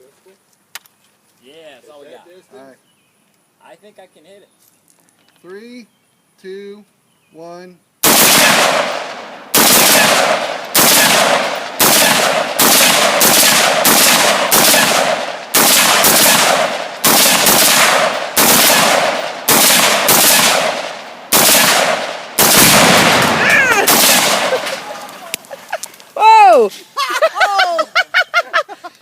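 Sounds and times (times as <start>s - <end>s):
gunshots: 8.0s - 25.2s.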